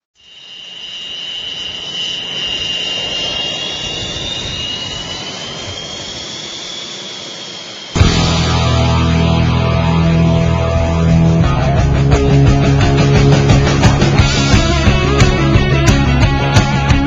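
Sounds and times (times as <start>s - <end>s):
jet engines with turbine whine: 0.0s - 17.0s
heavy metal guitar music: 8.0s - 17.0s.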